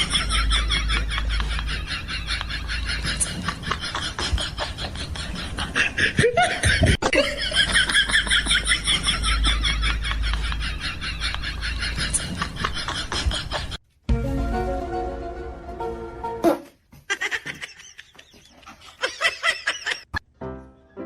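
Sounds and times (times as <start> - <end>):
person laughing: 0.0 - 13.8, 16.4 - 20.1.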